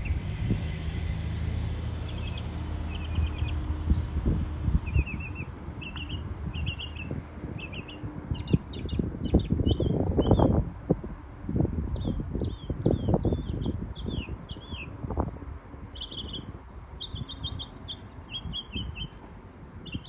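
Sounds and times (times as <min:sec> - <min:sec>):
mockingbird singing: 0:02.0 - 0:04.2, 0:04.8 - 0:10.5, 0:11.9 - 0:15.0, 0:15.9 - 0:20.0.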